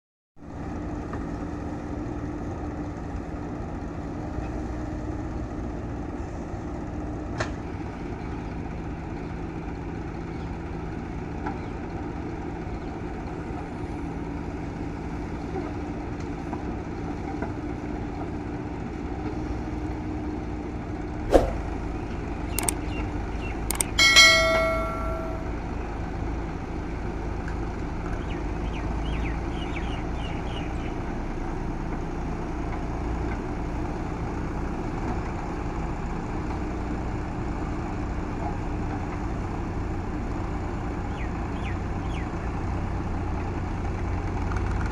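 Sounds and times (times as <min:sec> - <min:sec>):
diesel engine running: 0:00.5 - 0:44.9
multi-pitch tone: 0:23.8 - 0:25.6.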